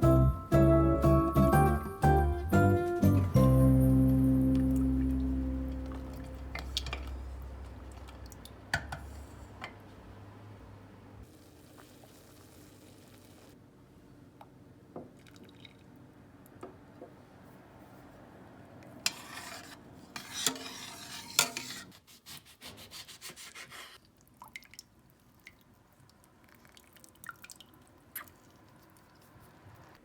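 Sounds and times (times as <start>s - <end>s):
rubbing or scraping: 19.1s - 24.0s.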